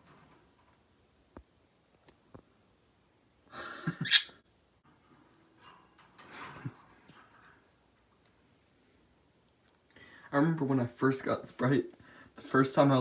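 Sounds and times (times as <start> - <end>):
parakeets squawking: 4.0 - 4.3.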